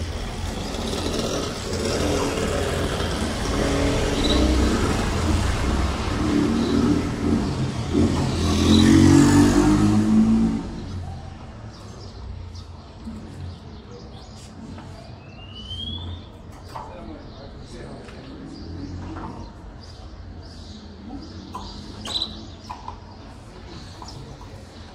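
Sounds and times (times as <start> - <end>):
motor vehicle passing by: 0.0 - 15.1.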